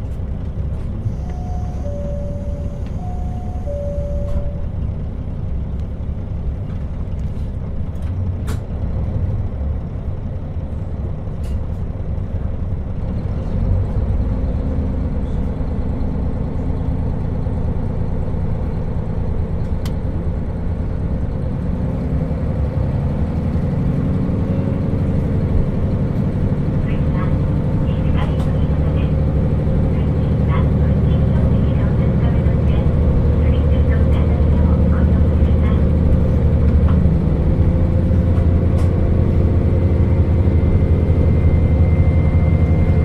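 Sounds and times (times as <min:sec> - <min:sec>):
engine hum: 0:00.0 - 0:43.0
train engine and wheels rumbling: 0:00.0 - 0:43.0
two-note chime: 0:01.3 - 0:04.7.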